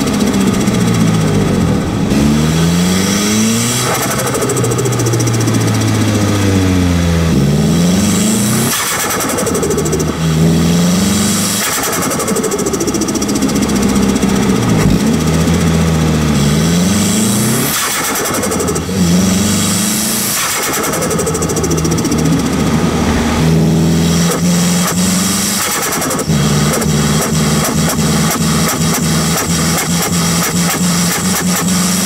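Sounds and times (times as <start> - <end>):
turbocharged car engine revving: 0.0 - 32.0
turbo flutter: 20.3 - 26.3.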